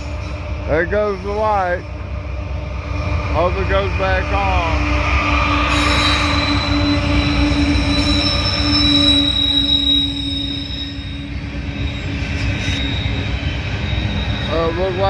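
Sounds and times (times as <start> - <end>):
train wheels squealing: 0.0 - 1.8, 5.1 - 15.0
rumble of train cars: 0.0 - 15.0.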